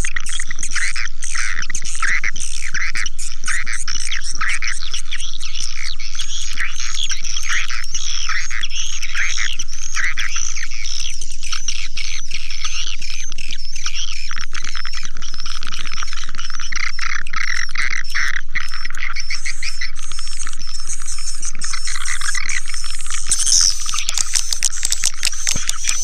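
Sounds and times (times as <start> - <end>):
swiftlets chirping: 19.4 - 26.0.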